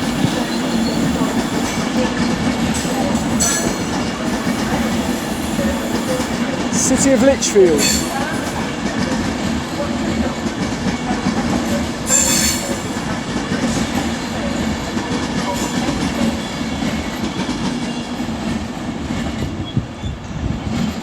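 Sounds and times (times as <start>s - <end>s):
train wheels squealing: 0.0s - 6.6s, 7.8s - 9.1s, 11.0s - 18.3s, 19.5s - 21.0s
electric train humming: 0.0s - 19.1s.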